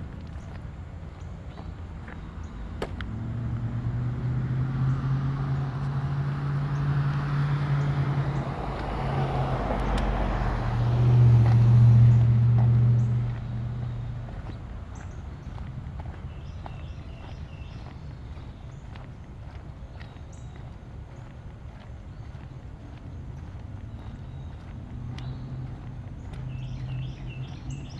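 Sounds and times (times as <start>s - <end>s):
vehicle engine hum: 0.0s - 27.9s.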